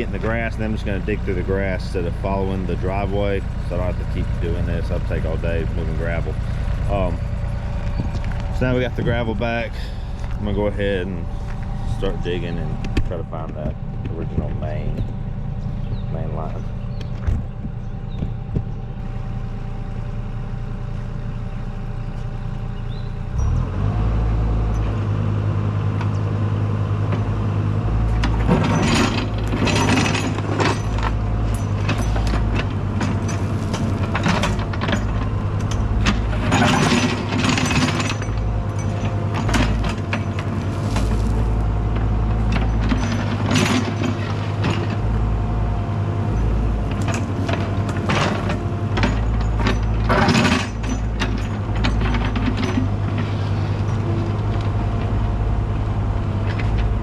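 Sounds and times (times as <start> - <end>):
diesel excavator engine: 0.0 - 57.0
bucket scraping and clanking: 28.2 - 45.1.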